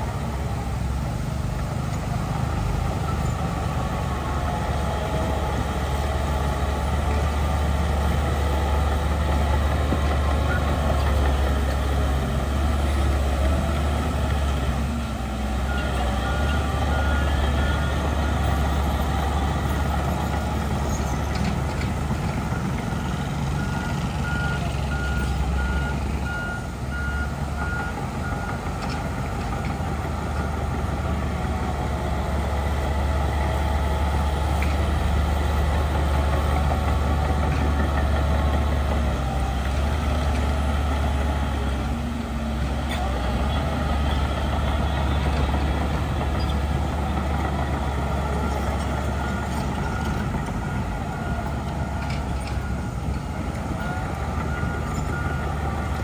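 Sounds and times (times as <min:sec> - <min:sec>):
diesel machinery engine hum: 0:00.0 - 0:56.0
reversing alarm beeping: 0:22.4 - 0:28.6.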